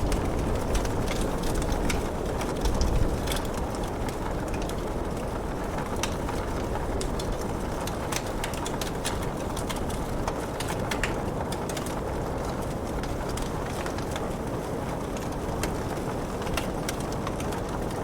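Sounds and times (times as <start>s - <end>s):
rain falling: 0.0s - 18.0s
wood fire crackling and popping: 0.0s - 18.0s.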